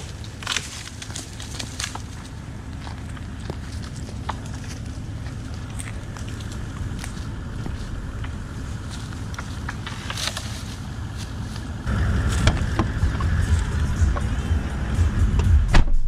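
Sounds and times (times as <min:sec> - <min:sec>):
dry branches snapping: 0:00.0 - 0:14.3
footsteps: 0:00.0 - 0:15.6
vehicle engine idling: 0:00.0 - 0:16.0.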